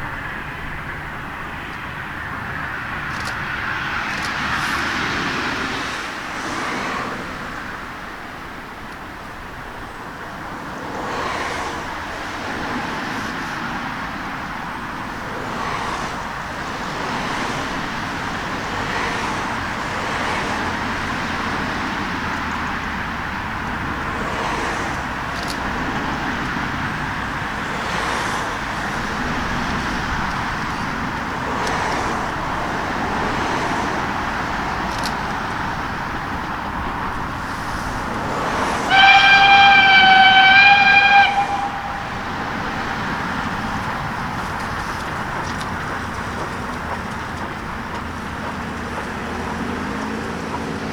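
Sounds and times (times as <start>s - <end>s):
steady rushing noise: 9.4s - 50.9s
steam locomotive whistle: 37.6s - 44.4s.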